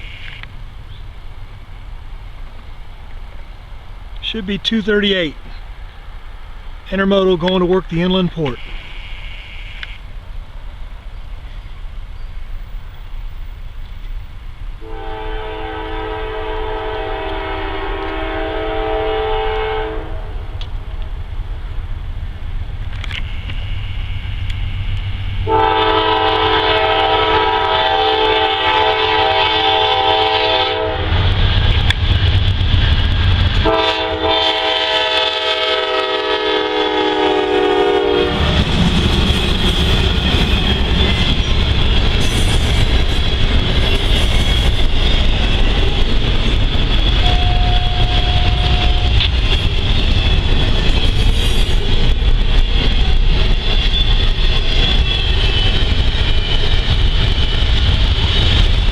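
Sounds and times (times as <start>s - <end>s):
locomotive air horn: 0.0s - 0.4s, 8.4s - 10.0s, 14.8s - 20.5s, 23.2s - 31.1s, 33.6s - 38.5s, 47.2s - 49.3s
train rolling past: 0.0s - 58.9s
locomotive engine rumble: 10.0s - 58.9s.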